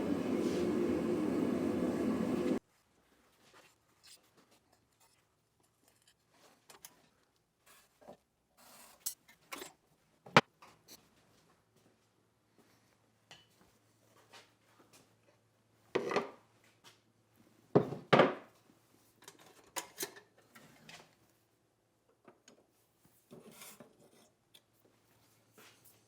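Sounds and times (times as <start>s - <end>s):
faint steady hum: 0.0s - 2.6s.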